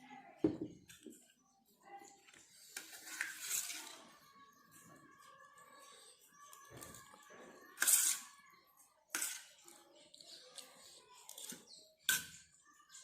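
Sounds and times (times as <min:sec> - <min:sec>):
cutlery clinking on a plate: 0:11.3 - 0:12.5.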